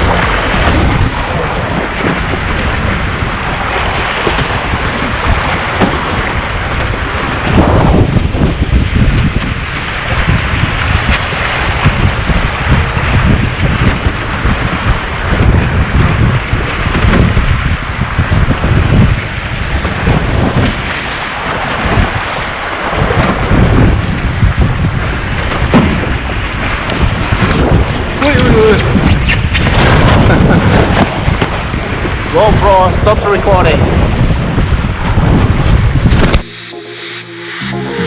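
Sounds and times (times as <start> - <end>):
wind buffeting microphone: 0.0 - 20.9, 21.6 - 32.3
water rushing along hulls: 0.0 - 28.2.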